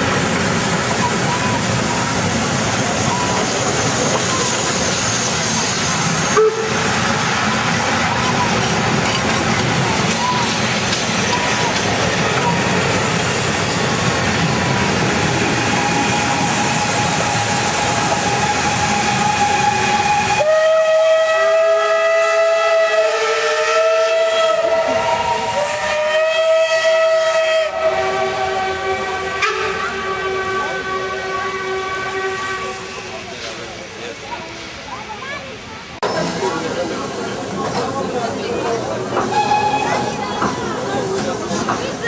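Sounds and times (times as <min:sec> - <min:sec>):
steam locomotive hissing: 0:00.0 - 0:42.0
steam whistle chord: 0:15.6 - 0:32.8.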